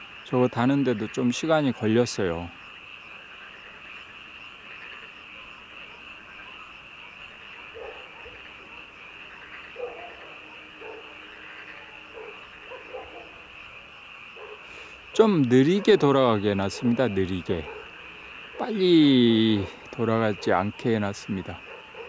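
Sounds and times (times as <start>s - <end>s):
frogs trilling chorus: 0.0s - 22.0s
low frog croaks: 0.0s - 22.0s.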